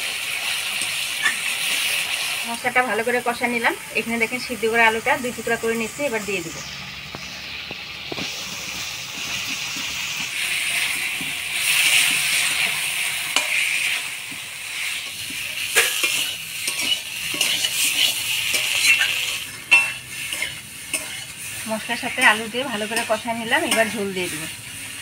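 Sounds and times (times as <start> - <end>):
food sizzling in a pan: 0.0 - 25.0
spatula knocking and scraping pan: 7.1 - 21.4.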